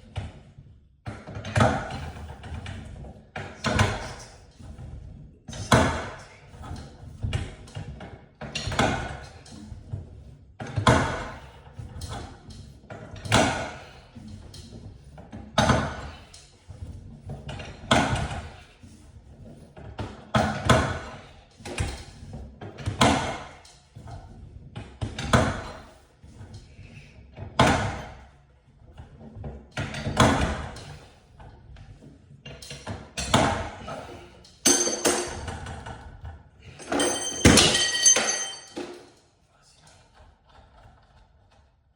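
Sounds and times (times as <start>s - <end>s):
regular knocks: 34.7s - 35.6s.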